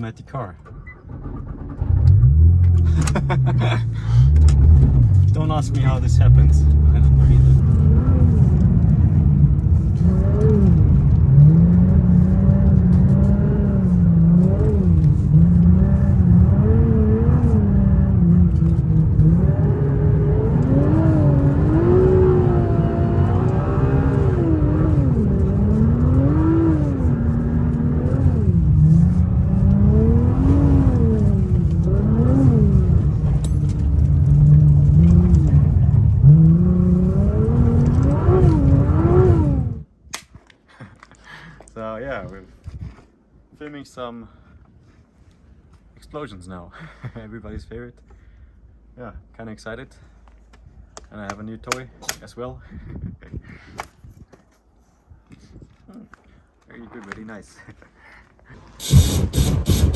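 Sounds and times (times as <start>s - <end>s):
car engine revving: 1.1s - 39.8s, 58.6s - 59.9s.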